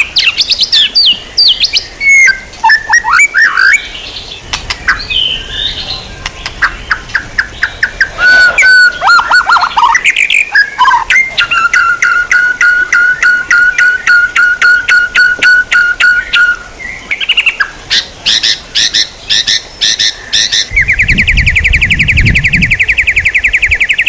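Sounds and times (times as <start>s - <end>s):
songbird repeated sharp notes: 0.0s - 24.0s
songbird singing: 0.0s - 24.0s.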